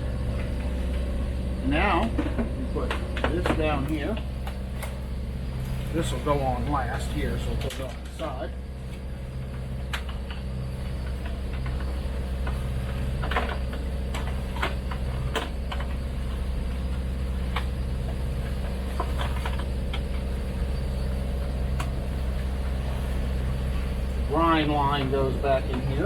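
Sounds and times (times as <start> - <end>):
boat engine humming: 0.0 - 26.0
hoses and plastic caps clicking: 2.0 - 5.0.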